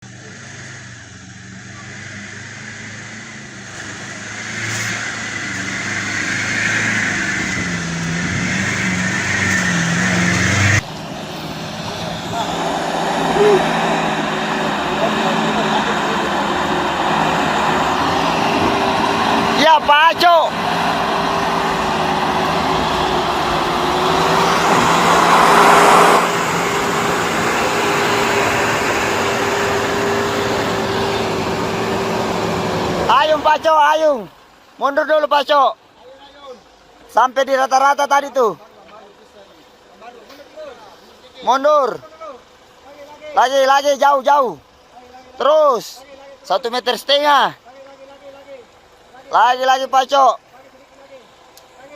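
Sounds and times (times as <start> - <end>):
rushing noise: 0.0 - 34.5
truck engine revving: 0.0 - 47.6.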